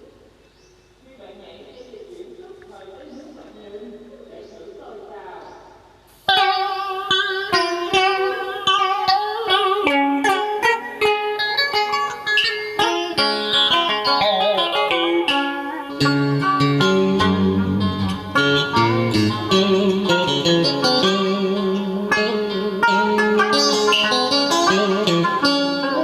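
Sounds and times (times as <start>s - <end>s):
plucked guitar melody: 6.3s - 26.0s
deep bass notes: 16.0s - 23.5s.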